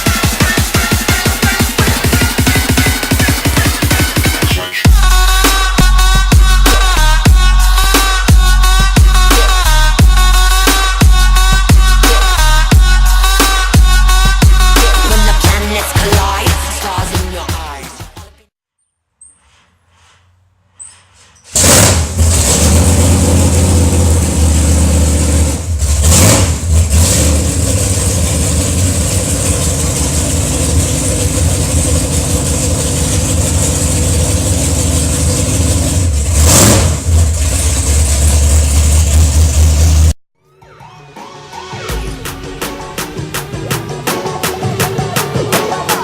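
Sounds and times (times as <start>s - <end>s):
engine throttle blips: 19.2s - 40.2s
car engine starting and rumbling: 21.5s - 40.2s.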